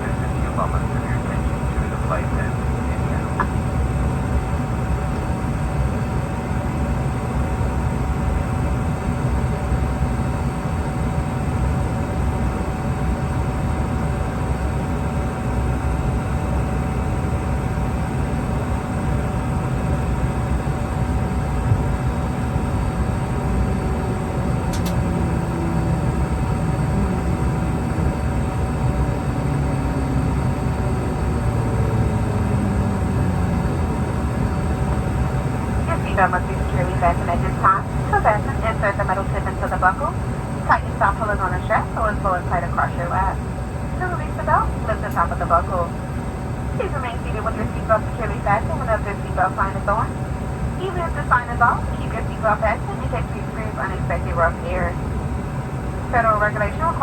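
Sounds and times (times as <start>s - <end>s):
aircraft cabin drone: 0.0s - 57.0s
short click: 24.7s - 25.0s.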